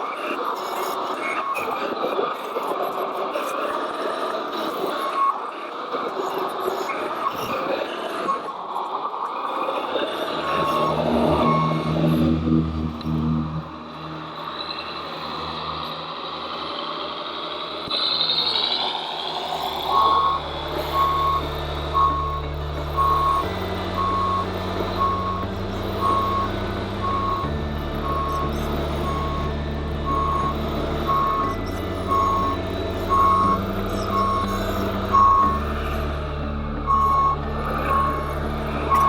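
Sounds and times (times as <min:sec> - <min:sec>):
model truck engine: 0:00.0 - 0:39.0
reversing beeper: 0:10.1 - 0:16.8, 0:19.8 - 0:39.0
rising whine: 0:10.2 - 0:17.7, 0:19.4 - 0:39.0.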